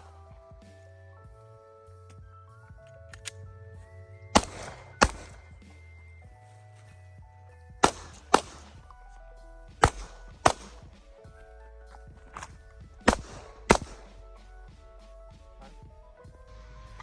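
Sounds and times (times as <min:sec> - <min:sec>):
background music with held notes: 0:00.0 - 0:17.0
pistol shots: 0:04.4 - 0:05.8, 0:07.8 - 0:09.0, 0:09.8 - 0:11.1, 0:12.3 - 0:14.2.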